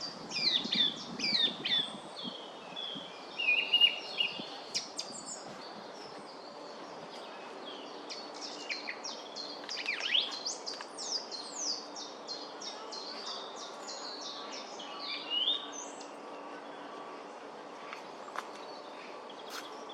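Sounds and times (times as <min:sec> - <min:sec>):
song thrush singing: 0:00.0 - 0:16.7
low background noise: 0:00.0 - 0:19.9.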